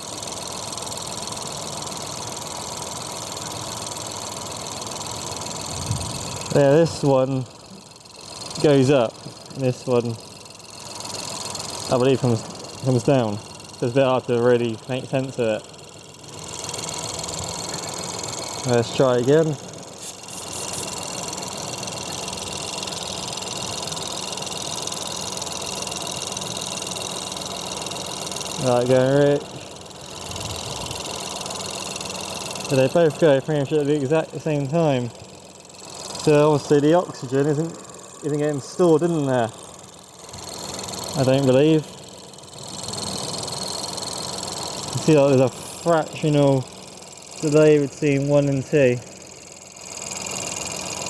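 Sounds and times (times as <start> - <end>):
car engine idling: 0.0 - 51.0.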